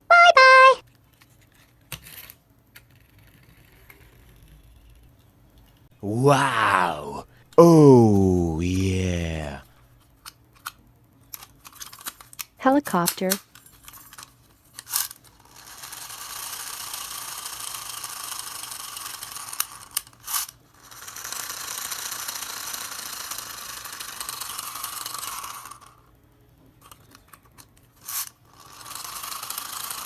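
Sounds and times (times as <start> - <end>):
toy gear mechanism whirring: 10.3 - 26.1, 26.8 - 30.0.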